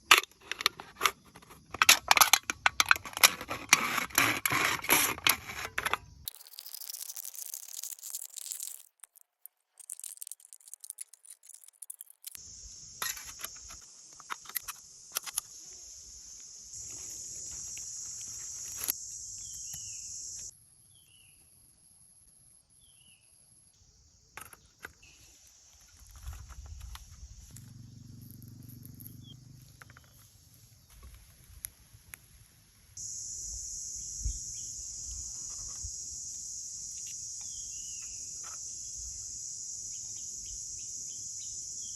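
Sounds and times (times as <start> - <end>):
crackling handling noise: 0.0 - 15.6
insects droning: 0.0 - 41.9
bird chirps: 19.1 - 21.4, 28.8 - 30.3, 36.9 - 41.9.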